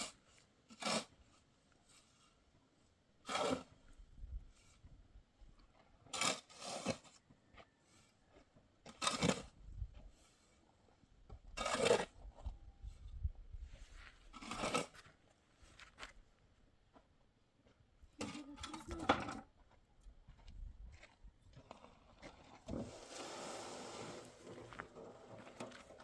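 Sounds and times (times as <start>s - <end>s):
rough hand scraping strokes: 22.7s - 26.0s.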